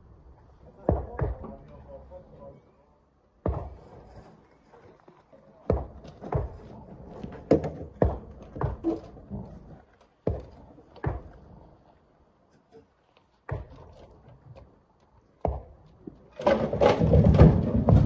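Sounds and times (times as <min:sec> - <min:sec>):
rocks knocking heavily: 0:05.7 - 0:11.6, 0:15.4 - 0:18.0.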